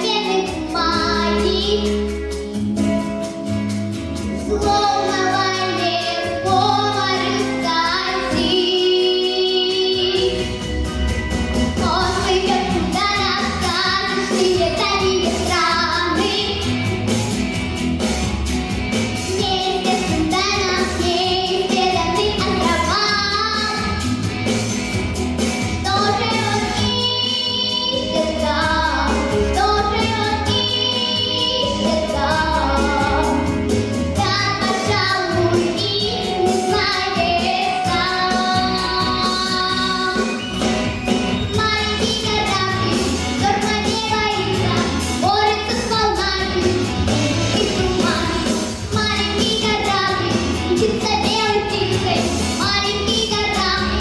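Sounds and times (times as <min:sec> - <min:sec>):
girl singing pop song: 0:00.0 - 0:02.8, 0:04.3 - 0:10.8, 0:11.8 - 0:16.9, 0:19.1 - 0:24.4, 0:25.6 - 0:54.0
backing track with bass beat: 0:10.0 - 0:27.0.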